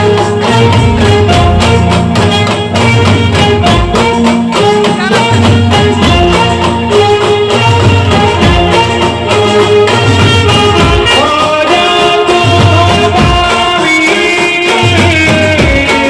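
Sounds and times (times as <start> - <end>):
brass band playing: 0.0 - 16.0
driving drum beat: 0.0 - 16.0.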